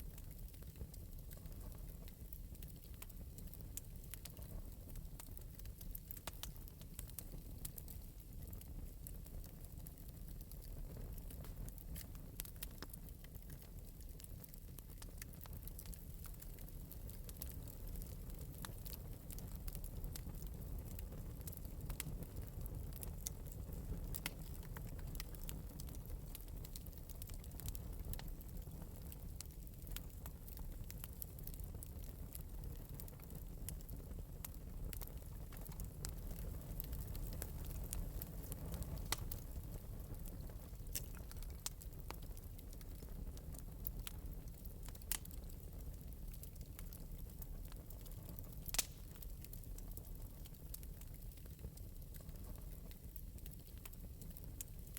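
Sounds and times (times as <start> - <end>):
fire crackling and popping: 0.0 - 54.9
low fire rumble: 0.0 - 54.9.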